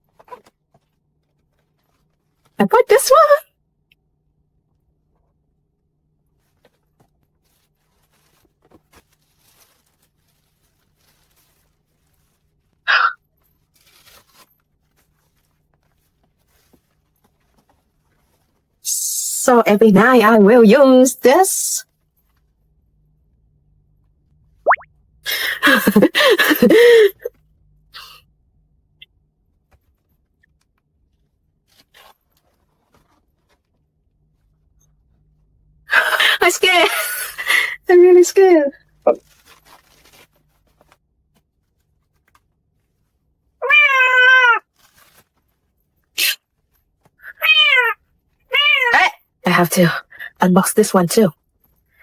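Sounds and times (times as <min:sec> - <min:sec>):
soft rustle: 0:00.0 - 0:02.6, 0:06.2 - 0:18.8, 0:29.5 - 0:35.5, 0:38.8 - 0:43.6, 0:44.6 - 0:47.3.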